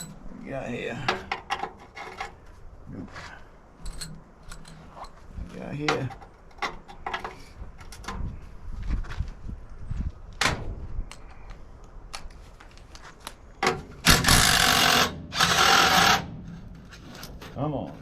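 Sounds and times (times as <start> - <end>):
power drill running: 14.4 - 16.3.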